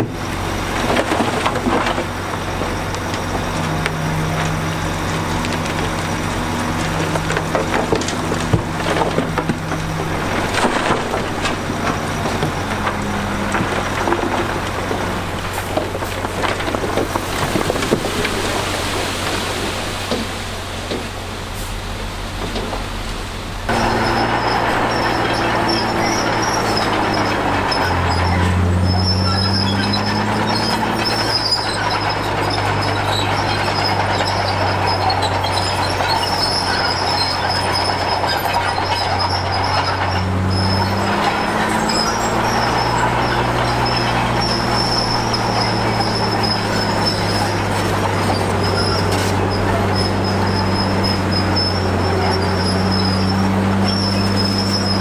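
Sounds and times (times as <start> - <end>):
bulldozer diesel engine under load: 0.0 - 55.0
steady high-pitched squeal: 22.8 - 55.0.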